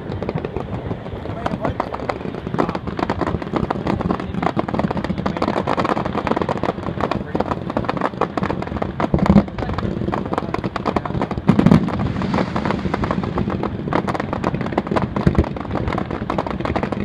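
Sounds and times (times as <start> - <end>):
fireworks crackling pops and bangs: 0.0 - 17.0
loud firework boom: 0.0 - 17.0.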